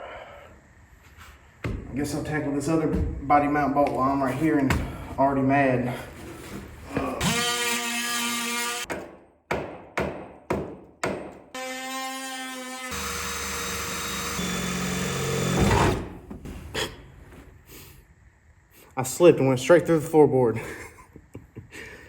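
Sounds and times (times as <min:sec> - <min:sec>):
oscillating multi-tool buzzing: 0:12.8 - 0:15.6.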